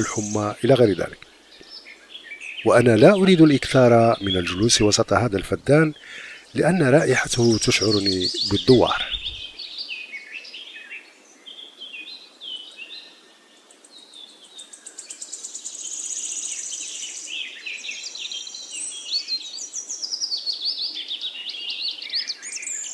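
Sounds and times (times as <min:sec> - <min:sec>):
buzzy bird trill: 0:00.0 - 0:01.2, 0:02.4 - 0:09.6
songbirds singing and chirping: 0:00.0 - 0:22.9.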